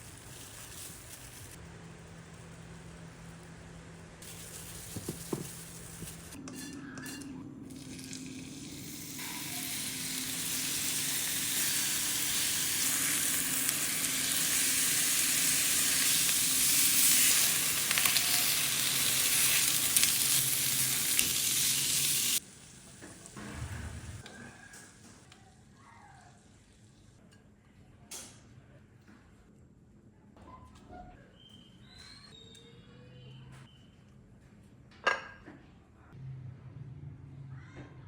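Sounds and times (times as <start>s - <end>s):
food sizzling in pan: 0.0s - 1.6s, 4.2s - 6.4s, 7.7s - 23.4s.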